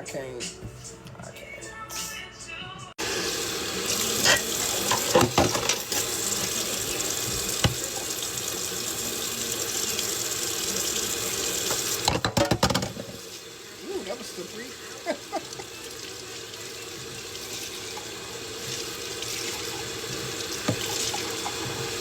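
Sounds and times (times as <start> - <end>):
tap running into sink: 3.8 - 13.4, 16.9 - 22.0
dishes clinking: 4.1 - 6.6, 11.6 - 13.3.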